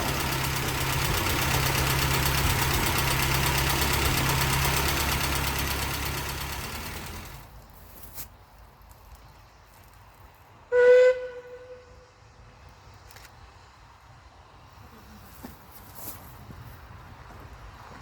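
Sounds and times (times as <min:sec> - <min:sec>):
engine drone: 0:00.0 - 0:07.5.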